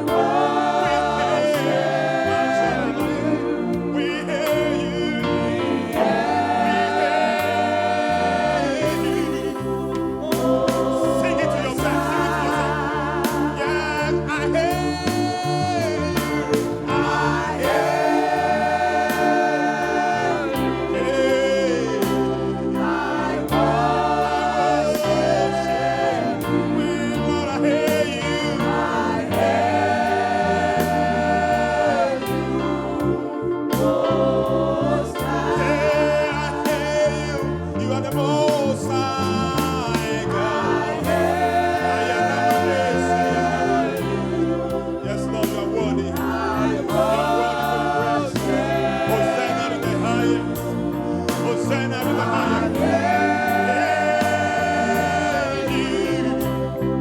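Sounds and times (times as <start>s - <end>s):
band accompaniment: 0.0s - 57.0s
choir singing praise song: 0.0s - 57.0s
steady drum beat: 8.8s - 13.8s, 40.8s - 44.4s.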